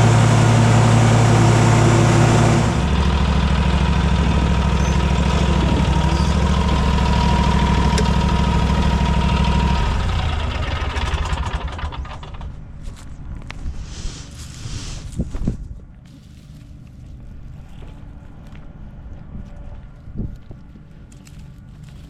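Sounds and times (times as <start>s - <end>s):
engine idling: 0.0s - 12.9s.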